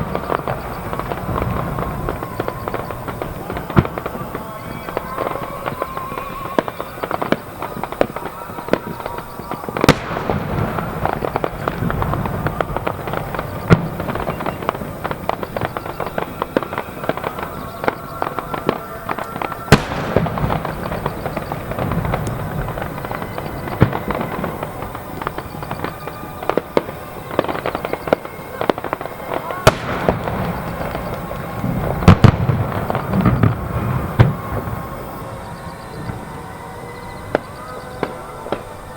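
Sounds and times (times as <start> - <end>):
big firework shells bursting: 0.0 - 38.9
fireworks crackling bursts: 0.0 - 38.9.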